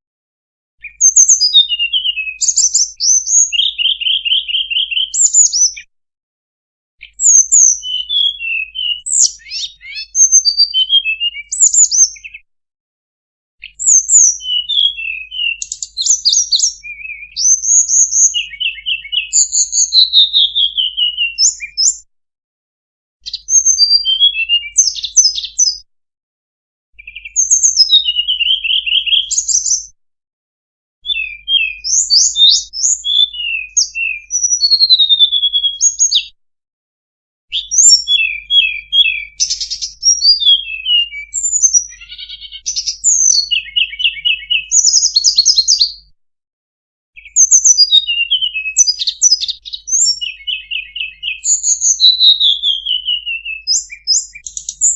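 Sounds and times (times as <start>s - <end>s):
bird twittering and trilling: 0.8s - 5.9s, 7.0s - 12.4s, 13.6s - 22.0s, 23.2s - 25.8s, 27.0s - 29.9s, 31.0s - 36.3s, 37.5s - 46.1s, 47.2s - 54.9s.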